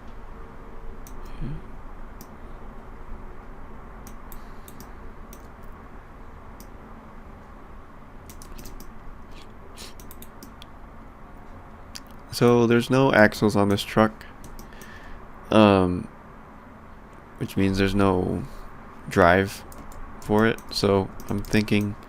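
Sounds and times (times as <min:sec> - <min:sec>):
steady low hum: 0:00.0 - 0:22.0
keyboard and mouse clicks: 0:04.0 - 0:05.8, 0:08.3 - 0:10.7, 0:14.4 - 0:15.0, 0:19.6 - 0:22.0.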